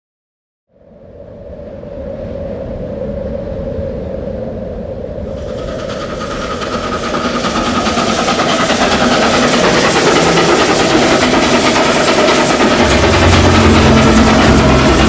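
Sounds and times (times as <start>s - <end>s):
model train wheels clicking: 5.4s - 15.0s.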